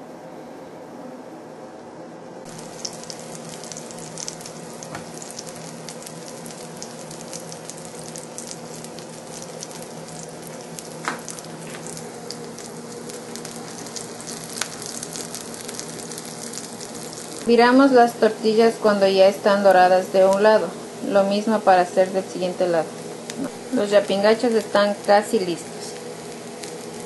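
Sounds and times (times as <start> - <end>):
low steady hum: 0.0 - 27.0
oil popping: 2.5 - 17.5
patties sizzling in oil: 2.5 - 27.0.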